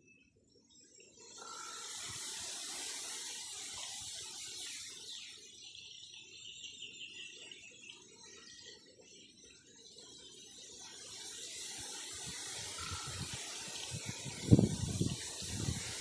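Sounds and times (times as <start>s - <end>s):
faint chirps: 0.0s - 16.0s
bamboo leaves rustling in wind: 10.9s - 16.0s.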